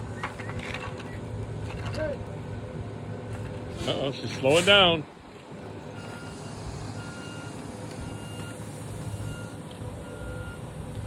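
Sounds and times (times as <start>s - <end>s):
engine rumbling: 0.0s - 11.0s
reversing alarm beeping: 5.9s - 10.9s.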